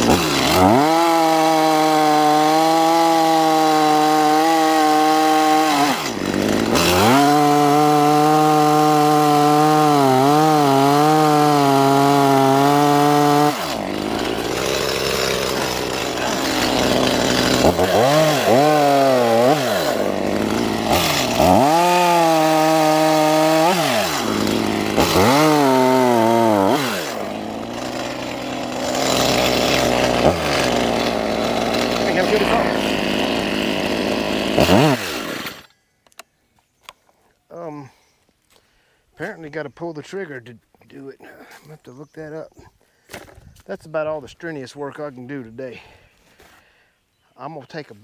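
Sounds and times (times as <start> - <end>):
chainsaw cutting wood: 0.0 - 35.7
chainsaw revving: 0.0 - 35.7.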